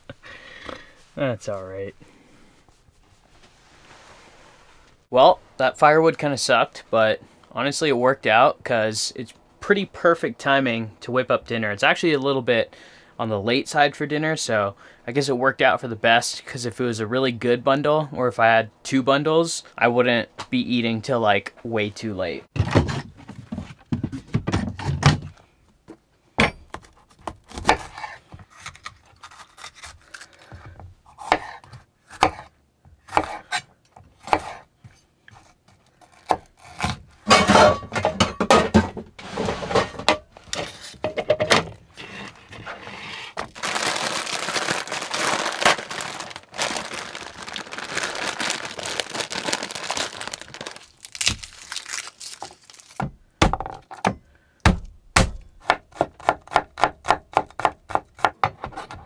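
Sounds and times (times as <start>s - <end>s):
cookware clattering: 37.3s - 40.3s
rustling: 41.9s - 53.0s
packaging crinkling and tearing: 43.4s - 53.0s.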